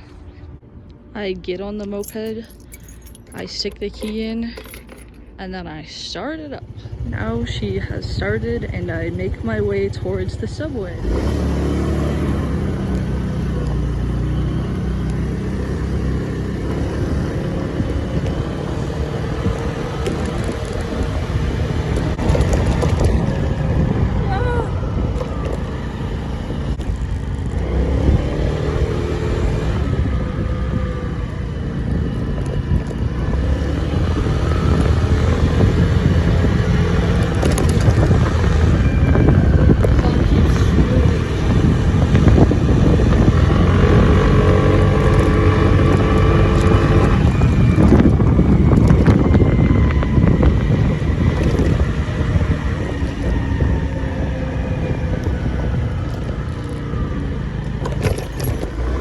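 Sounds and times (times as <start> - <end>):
wind buffeting microphone: 5.2 - 59.0
moped engine revving: 6.1 - 59.0.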